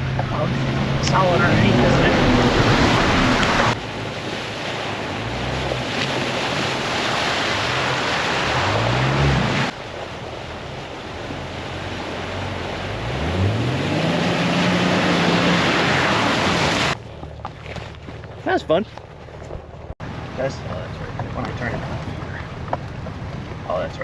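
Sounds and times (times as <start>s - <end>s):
truck engine revving: 0.0s - 17.5s
constant rushing noise: 0.0s - 24.0s.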